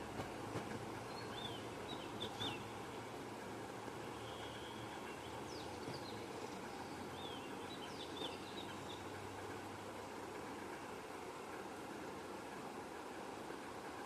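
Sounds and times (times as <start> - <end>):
small birds chirping: 4.2 - 9.1.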